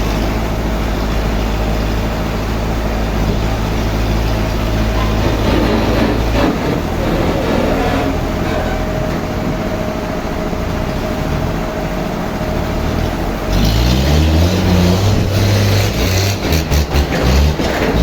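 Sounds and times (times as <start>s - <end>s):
sawmill machinery humming: 0.1s - 18.0s
knocks and clatters: 4.6s - 9.9s, 16.0s - 18.0s.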